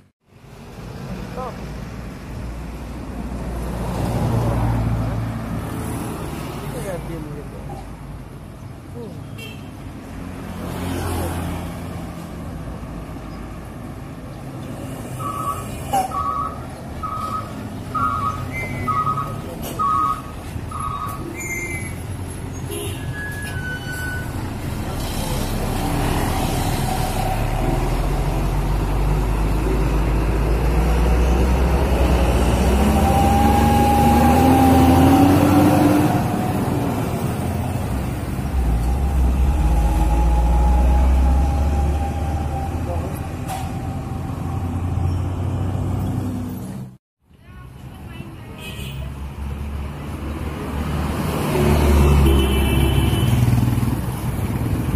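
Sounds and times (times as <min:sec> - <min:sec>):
heavy truck engine rumbling: 0:11.3 - 0:47.0
truck reversing beeper: 0:15.2 - 0:22.0, 0:23.0 - 0:24.6, 0:38.6 - 0:45.6.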